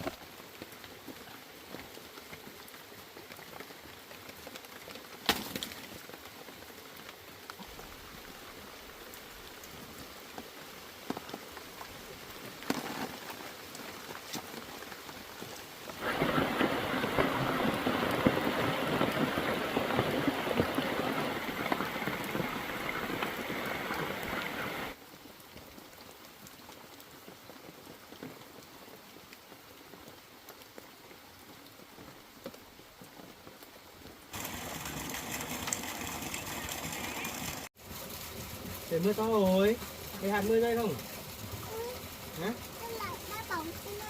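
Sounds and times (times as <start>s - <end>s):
heavy rain: 0.0s - 44.0s.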